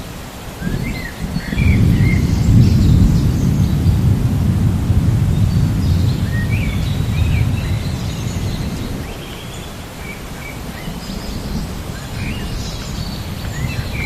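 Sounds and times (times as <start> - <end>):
steady hiss: 0.0 - 14.0
low rumble of thunder: 0.6 - 14.0
bird chirping: 5.3 - 14.0.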